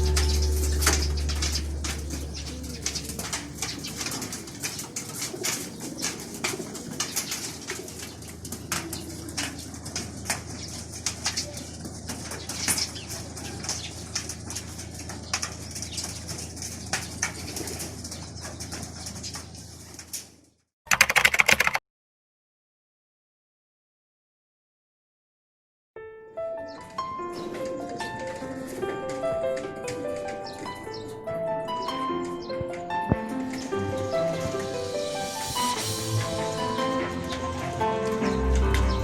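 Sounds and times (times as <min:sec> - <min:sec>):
pigeons cooing: 0:00.0 - 0:09.7
pigeon wing flaps: 0:01.9 - 0:09.6.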